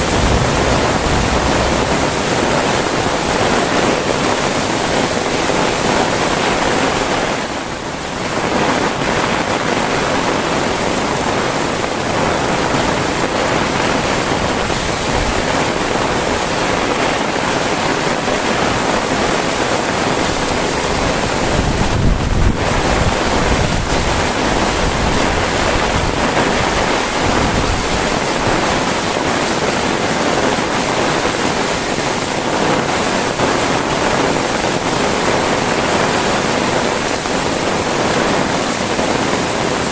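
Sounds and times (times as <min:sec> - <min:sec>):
low rumble: 0:00.0 - 0:03.7
heavy rain hissing: 0:00.0 - 0:39.9.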